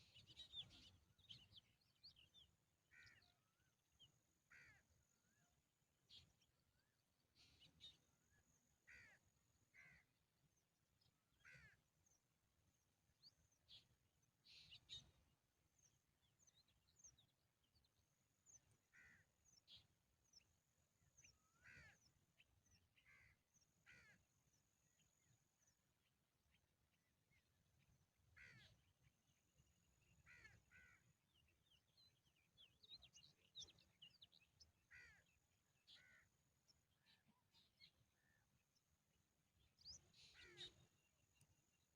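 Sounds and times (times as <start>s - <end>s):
birds chirping: 0.0s - 3.4s, 27.4s - 41.9s.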